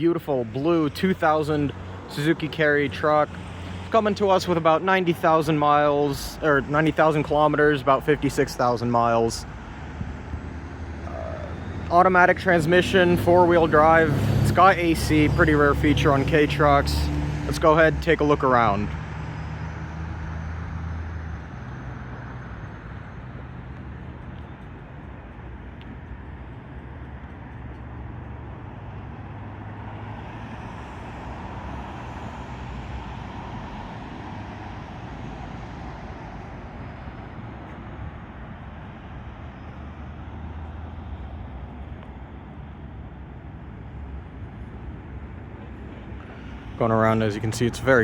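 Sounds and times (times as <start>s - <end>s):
road traffic rumble: 0.0s - 48.0s
vehicle passing: 8.8s - 22.8s, 43.7s - 48.0s.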